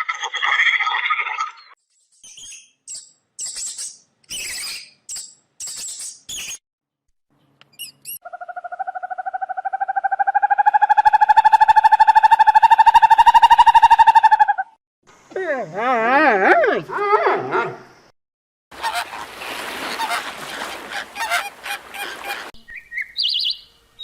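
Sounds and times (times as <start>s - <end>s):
animal pulsed trill: 8.2s - 14.6s
animal squeaky calls: 19.9s - 22.5s.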